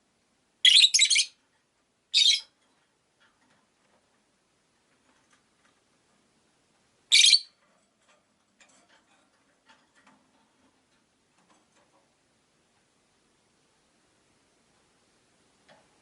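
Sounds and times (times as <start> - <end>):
lovebird high-pitched call: 0.6 - 1.4, 2.1 - 2.5, 7.1 - 7.6
soft bird chirps: 0.6 - 1.4, 2.1 - 2.5, 7.1 - 7.6.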